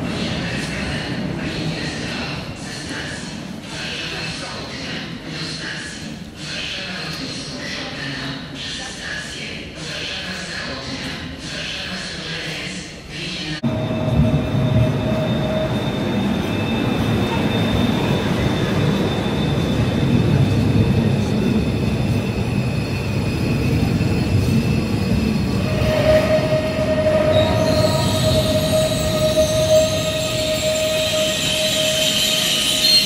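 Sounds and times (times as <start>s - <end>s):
train whining tone: 13.6s - 33.0s
wheels rumbling on rail: 13.6s - 33.0s
thin high squeal: 25.7s - 33.0s.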